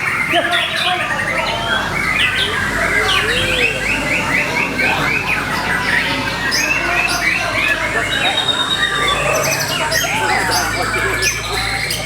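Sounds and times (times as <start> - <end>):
songbird singing busy song: 0.0 - 12.0.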